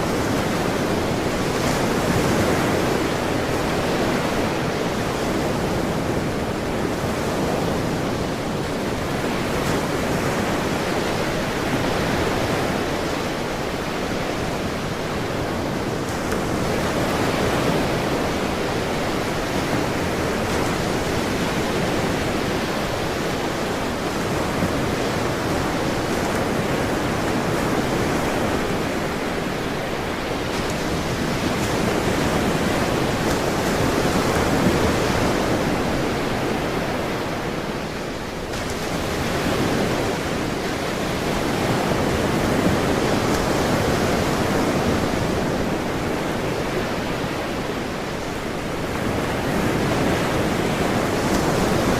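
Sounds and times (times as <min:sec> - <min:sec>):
ocean waves breaking: 0:00.0 - 0:51.9.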